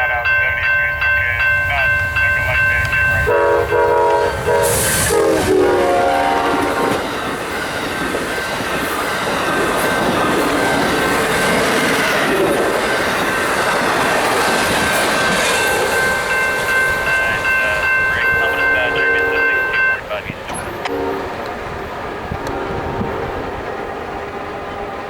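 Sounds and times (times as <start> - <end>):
passenger train wheels on rails: 0.0 - 25.0
train horn blast: 3.2 - 7.1, 18.2 - 21.6, 22.3 - 24.1.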